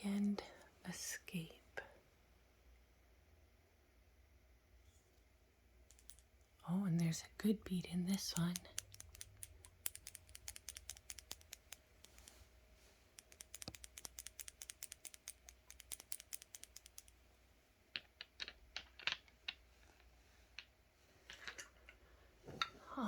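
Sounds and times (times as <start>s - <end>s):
bead clicking in shaken bottle: 5.9s - 6.3s, 8.1s - 12.5s, 13.1s - 17.2s.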